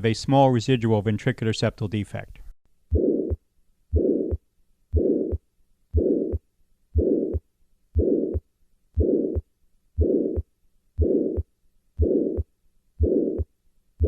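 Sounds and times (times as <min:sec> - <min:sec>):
heart murmur: 0:02.9 - 0:04.4
heartbeat: 0:02.9 - 0:05.4, 0:06.0 - 0:06.4, 0:07.0 - 0:07.4, 0:08.0 - 0:08.4, 0:09.0 - 0:13.5.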